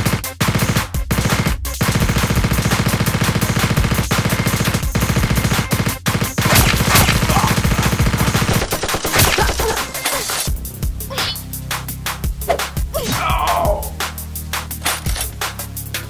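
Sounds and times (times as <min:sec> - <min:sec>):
automatic gunfire bursts: 0:00.0 - 0:10.5.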